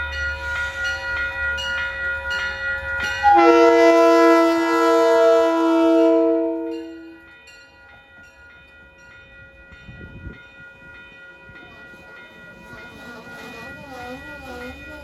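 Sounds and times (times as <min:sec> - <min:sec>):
crossing bell ringing: 0:00.0 - 0:15.0
train horn chord: 0:03.2 - 0:07.2.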